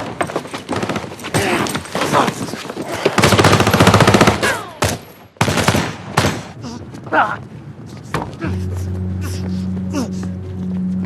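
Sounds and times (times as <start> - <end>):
automatic gunfire: 3.2 - 4.6.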